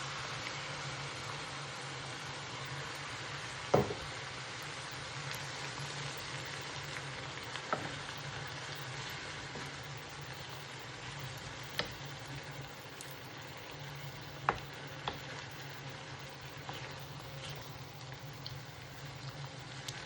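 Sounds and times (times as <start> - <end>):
food sizzling in a pan: 0.0 - 20.0
utensil tapping pan: 14.3 - 15.2.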